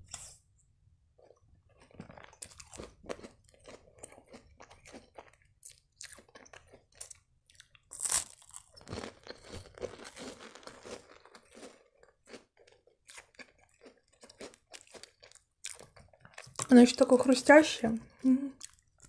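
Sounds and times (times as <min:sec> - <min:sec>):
biscuit crunching: 0:01.2 - 0:16.7.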